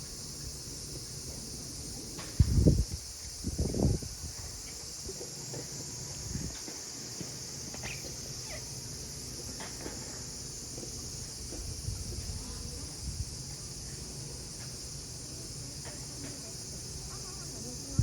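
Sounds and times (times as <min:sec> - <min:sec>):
cicadas calling: 0:00.0 - 0:18.0
faint distant voices: 0:09.3 - 0:18.0.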